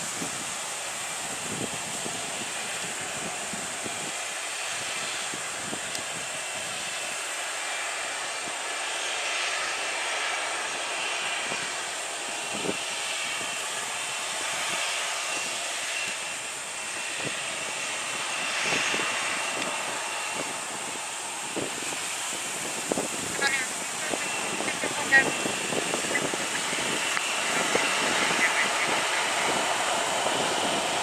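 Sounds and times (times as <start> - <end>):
jet engines running: 0.0 - 31.0.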